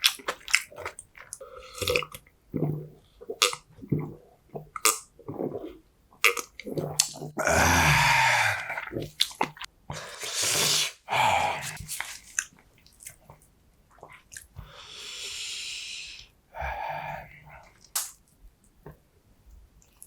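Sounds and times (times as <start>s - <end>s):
close chewing mouth sounds: 0.0s - 2.2s.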